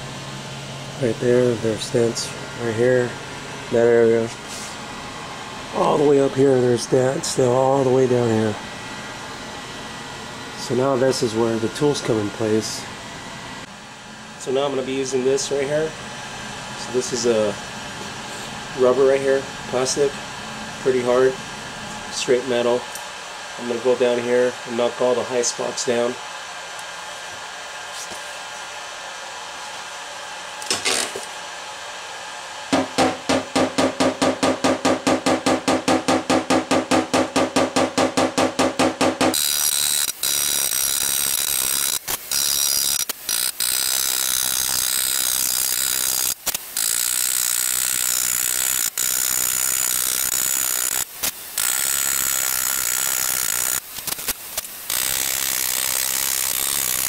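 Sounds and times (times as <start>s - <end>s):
hammer tapping on metal: 32.7s - 39.4s.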